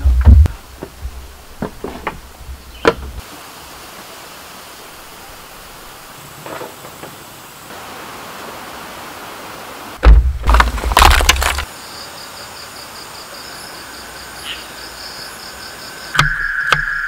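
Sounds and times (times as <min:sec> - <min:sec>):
rain hiss: 0:00.0 - 0:10.6
sharp knocks: 0:10.0 - 0:11.6.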